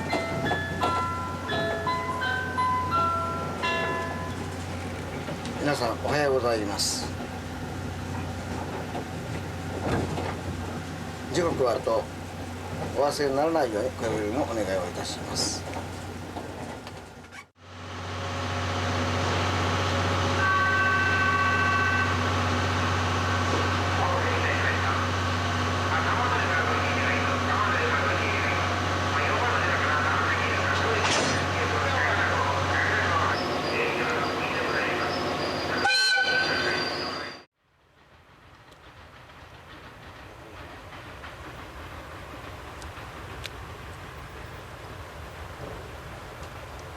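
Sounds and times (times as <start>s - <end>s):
faint clicks from rails: 0.0s - 2.2s, 3.8s - 5.8s, 6.8s - 13.1s, 14.0s - 17.5s, 38.2s - 46.9s
passenger train running: 0.0s - 46.9s
train horn: 20.2s - 22.4s, 35.7s - 36.8s.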